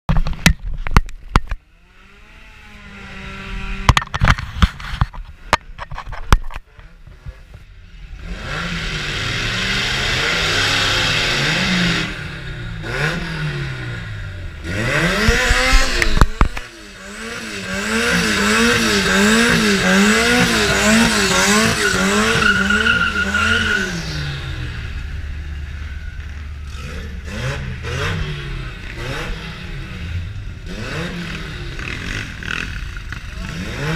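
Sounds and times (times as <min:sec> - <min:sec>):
car engine revving hard: 0:08.2 - 0:25.0, 0:26.7 - 0:33.9
tyre squeal: 0:20.3 - 0:24.5.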